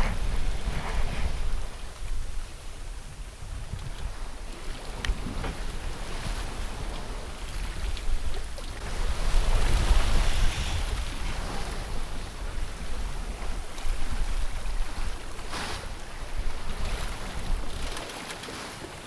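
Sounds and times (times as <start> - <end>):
wind buffeting microphone: 0.0 - 18.2
water rushing past boat hull: 0.0 - 19.0
wind: 0.0 - 19.0.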